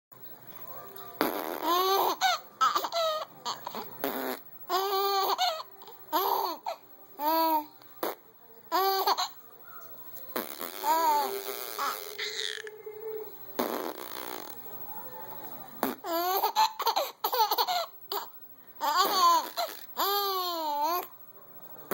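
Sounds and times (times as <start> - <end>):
baby laughing: 1.6 - 3.8, 4.7 - 5.6, 8.7 - 9.4, 10.8 - 12.7, 16.0 - 21.0.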